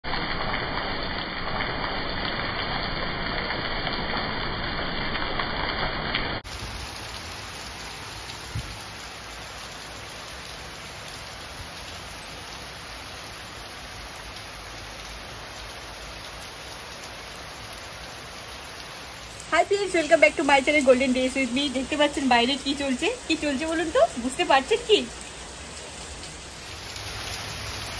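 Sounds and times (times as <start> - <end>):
heavy rain pouring: 0.0 - 27.9.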